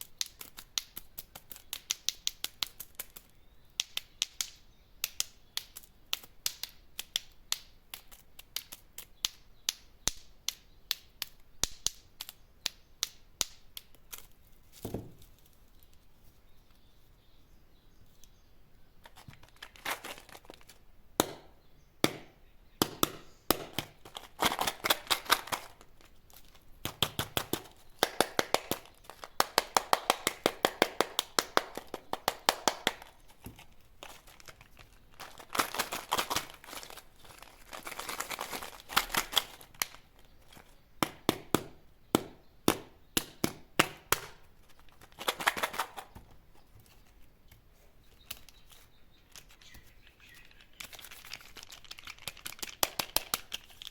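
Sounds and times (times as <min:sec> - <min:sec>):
plastic wrappers crackling: 0:19.0 - 0:20.9, 0:23.6 - 0:41.2, 0:43.9 - 0:47.3, 0:48.1 - 0:53.9.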